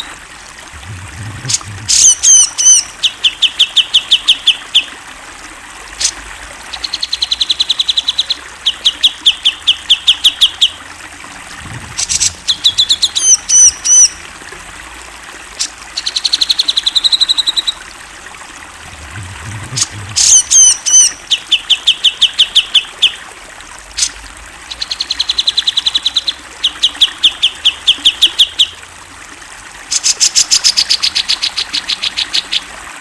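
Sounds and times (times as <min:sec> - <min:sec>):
bird looping high notes: 0:00.8 - 0:04.9, 0:11.8 - 0:14.2, 0:18.9 - 0:22.6
bird singing repeated notes: 0:00.8 - 0:04.9, 0:11.7 - 0:14.2, 0:19.0 - 0:22.8.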